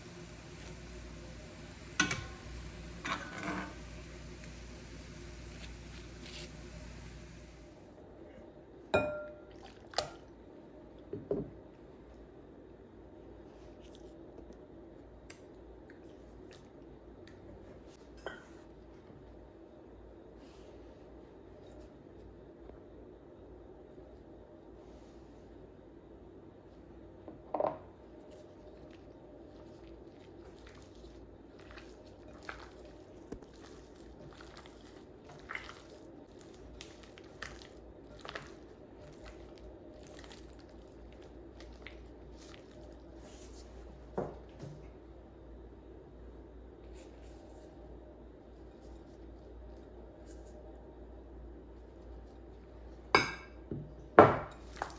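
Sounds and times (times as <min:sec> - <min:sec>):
soft squishing food: 0:00.0 - 0:07.9, 0:13.2 - 0:19.4, 0:28.0 - 0:45.0, 0:46.2 - 0:53.1, 0:54.5 - 0:54.9
steady low hum: 0:00.0 - 0:09.5.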